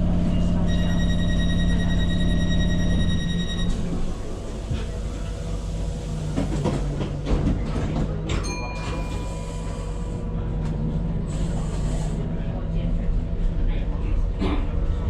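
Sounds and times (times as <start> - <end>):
train running with low hum: 0.0 - 15.0
brief ringing tone: 0.6 - 3.8.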